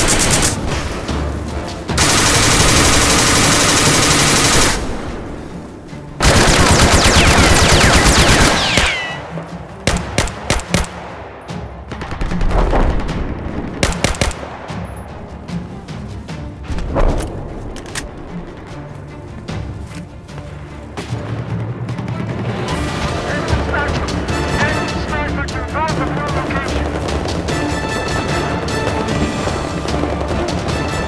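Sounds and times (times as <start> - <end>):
rapid machine-gun fire: 0.0 - 0.8, 2.0 - 5.1, 6.2 - 9.2, 9.9 - 11.0, 13.7 - 14.4, 26.2 - 31.0
background music: 0.0 - 31.0.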